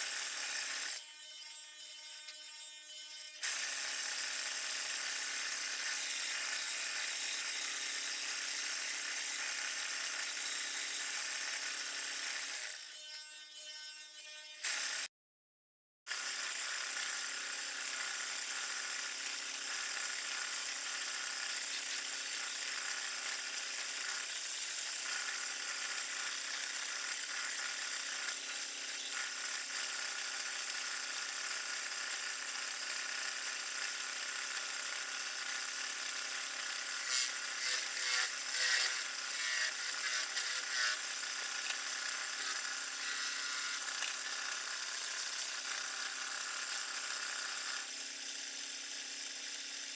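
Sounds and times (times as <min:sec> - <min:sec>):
wood lathe motor hum: 0:16.8 - 0:48.0
tool scraping spinning wood: 0:36.2 - 0:46.3.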